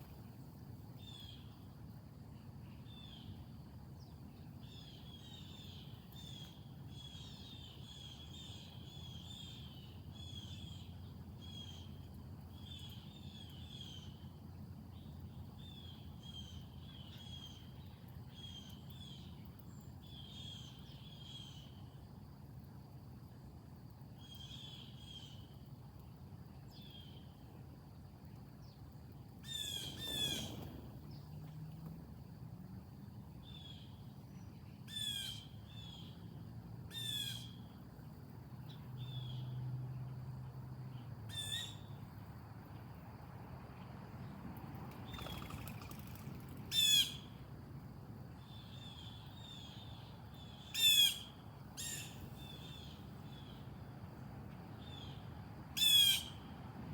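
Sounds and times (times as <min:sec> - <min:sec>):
low background rumble: 0:26.0 - 0:34.8.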